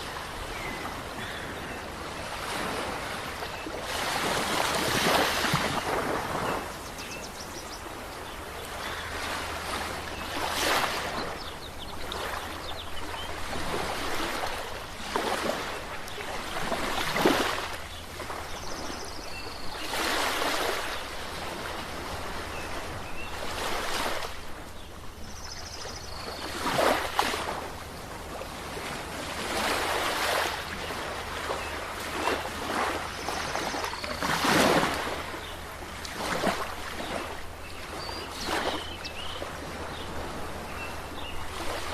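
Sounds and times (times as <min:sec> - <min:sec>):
sea waves breaking: 0:00.0 - 0:41.9.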